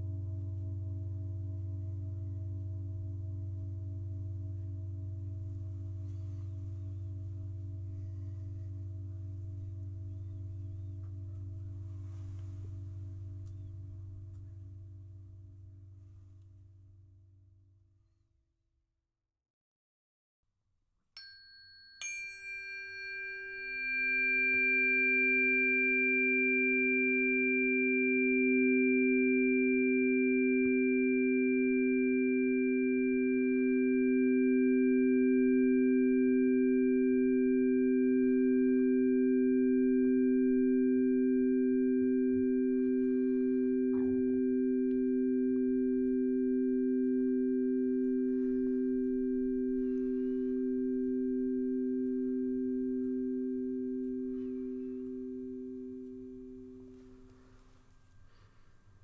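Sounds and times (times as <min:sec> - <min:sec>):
singing bowl ringing and humming: 0:00.0 - 0:17.4, 0:21.2 - 0:59.0.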